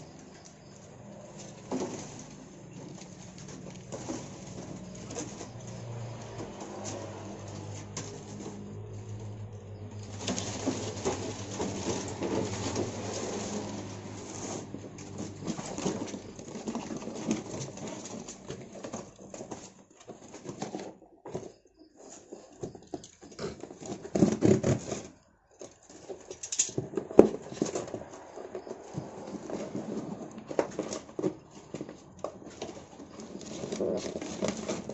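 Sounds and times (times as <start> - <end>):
birds fluttering in cage: 0.0 - 23.2.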